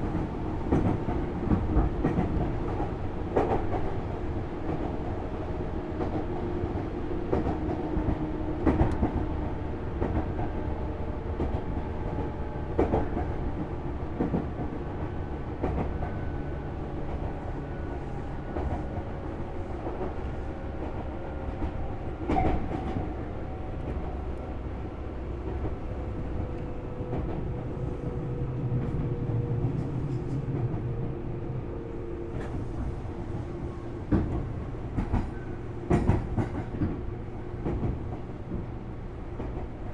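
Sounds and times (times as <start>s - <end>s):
train wheels rumbling on rail: 0.0s - 39.9s
clacks over rail joints: 11.3s - 16.3s, 19.8s - 27.7s, 32.3s - 39.9s.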